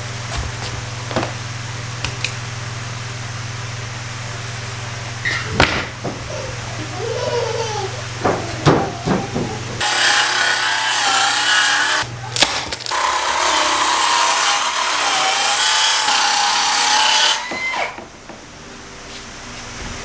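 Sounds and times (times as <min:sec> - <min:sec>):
handling knocks: 0:05.3 - 0:06.7, 0:08.0 - 0:09.8
power tool whining on wood: 0:09.8 - 0:12.1, 0:12.9 - 0:18.0.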